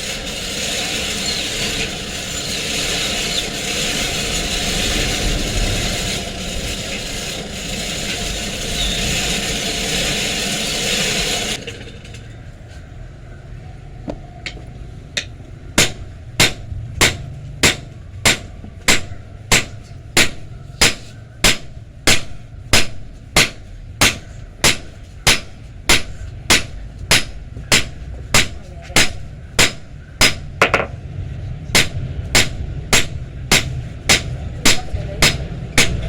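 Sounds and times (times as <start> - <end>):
power tool running: 0.0 - 12.3
hammer striking metal: 15.2 - 31.0, 31.7 - 36.0.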